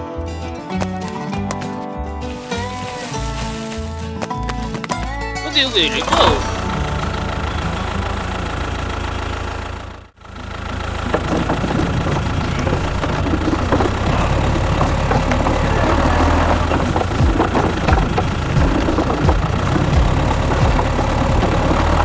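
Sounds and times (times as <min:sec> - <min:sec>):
small engine knocking clatter: 0:04.6 - 0:22.0.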